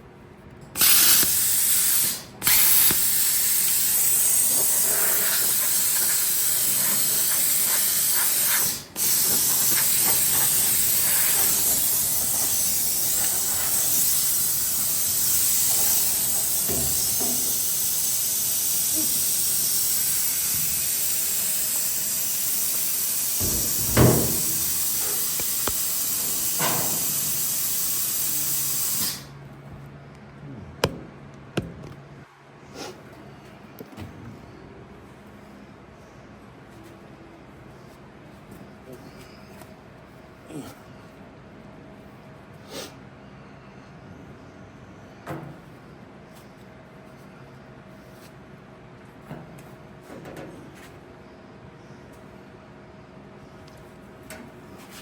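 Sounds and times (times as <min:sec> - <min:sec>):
plasma cutter hissing: 0:00.8 - 0:29.3.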